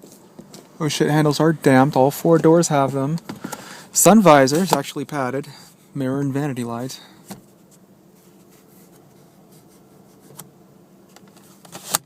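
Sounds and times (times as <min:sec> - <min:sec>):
low steady hum: 0:00.0 - 0:12.0
faint rubbing: 0:07.4 - 0:10.4.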